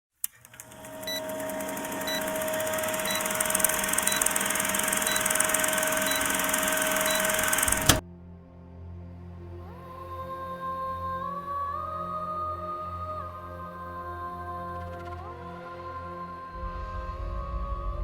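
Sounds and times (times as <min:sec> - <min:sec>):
click: 0:00.2 - 0:08.0
hum-like tone: 0:00.6 - 0:08.0
short high beeps: 0:01.0 - 0:08.0.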